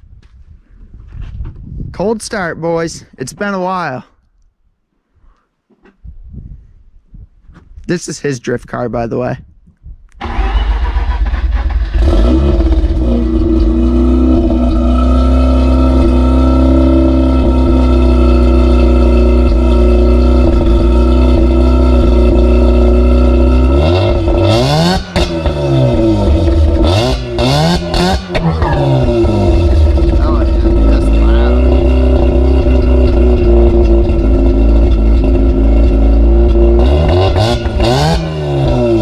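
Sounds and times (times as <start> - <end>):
engine revving: 10.2 - 39.0
rotary engine fast idle: 28.6 - 37.3.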